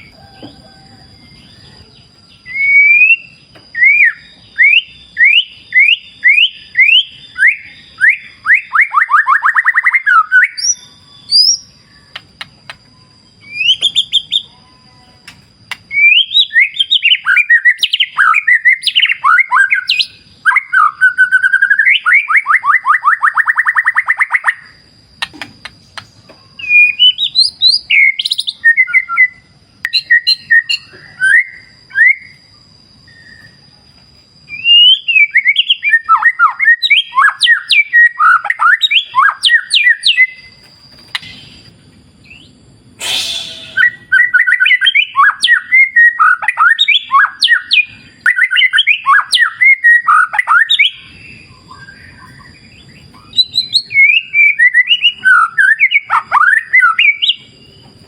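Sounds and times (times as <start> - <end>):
bird singing whistled notes: 0.0 - 58.0
brief rushing noise: 43.0 - 43.9.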